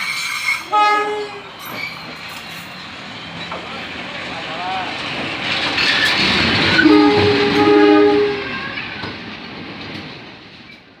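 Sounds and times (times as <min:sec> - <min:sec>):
train passing: 0:00.0 - 0:11.0
multi-tone train horn blast: 0:00.6 - 0:01.5, 0:06.7 - 0:08.8.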